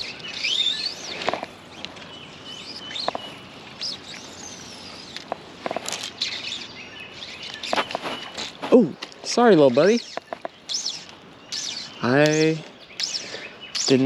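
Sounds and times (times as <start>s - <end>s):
handling noises: 0.0s - 6.6s, 7.3s - 11.4s
songbirds chirping and whistling: 0.0s - 14.0s.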